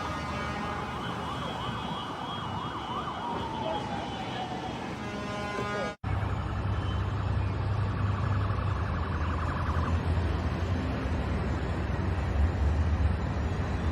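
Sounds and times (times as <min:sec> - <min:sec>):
faint warbling siren: 0:00.0 - 0:10.6
city street rumble: 0:00.0 - 0:13.9.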